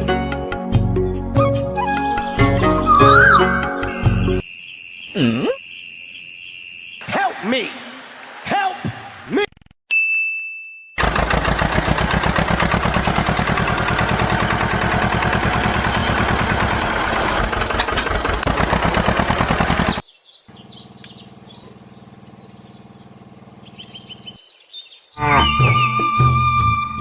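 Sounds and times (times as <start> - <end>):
high chirps: 2.8 - 7.1.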